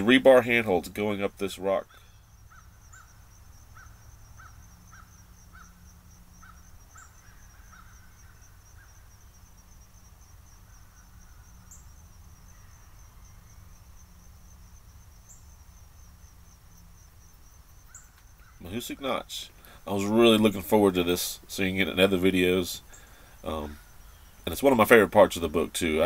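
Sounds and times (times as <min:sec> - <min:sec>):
insect chirr: 0:00.0 - 0:26.0
bird calling: 0:01.3 - 0:09.5, 0:10.6 - 0:13.7, 0:17.7 - 0:26.0.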